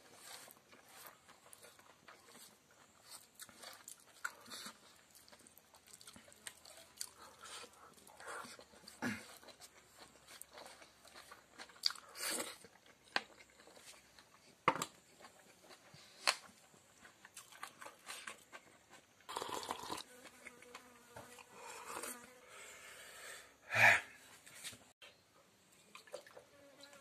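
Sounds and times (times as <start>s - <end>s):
person chewing with mouth clicks: 0.7s - 14.4s, 15.2s - 22.3s.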